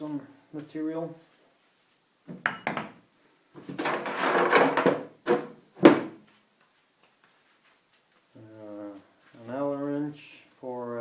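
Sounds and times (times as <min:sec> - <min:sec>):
parts scraping and rattling: 0:03.6 - 0:06.1
pieces knocking down: 0:03.6 - 0:06.1.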